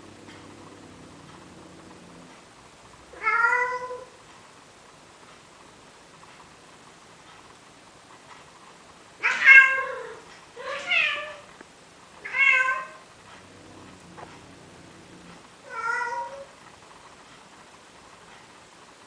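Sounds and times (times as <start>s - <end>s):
cat meowing: 3.2s - 4.2s, 9.2s - 11.5s, 12.2s - 13.0s, 14.4s - 16.6s.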